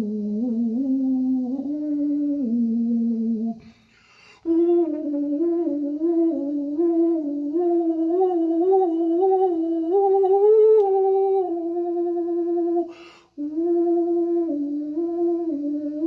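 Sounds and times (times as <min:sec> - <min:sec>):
person humming: 0:00.0 - 0:16.0
quick breath: 0:03.6 - 0:04.5, 0:12.9 - 0:13.4.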